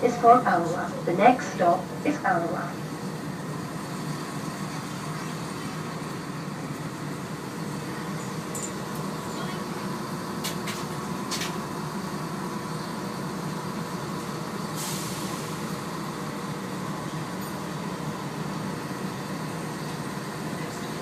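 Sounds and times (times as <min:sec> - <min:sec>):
train humming: 0:00.0 - 0:21.0
hiss of released air: 0:14.8 - 0:15.4.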